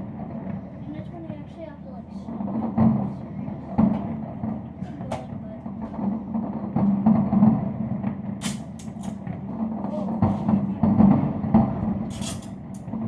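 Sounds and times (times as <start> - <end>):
fireworks popping and crackling: 0.0 - 13.0.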